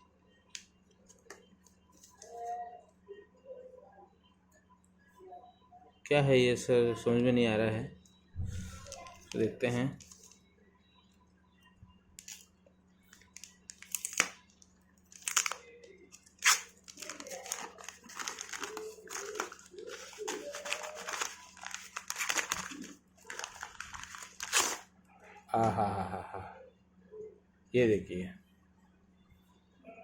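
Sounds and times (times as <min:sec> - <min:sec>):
packaging crinkling and tearing: 0:08.8 - 0:09.4, 0:12.2 - 0:12.5, 0:13.1 - 0:24.9.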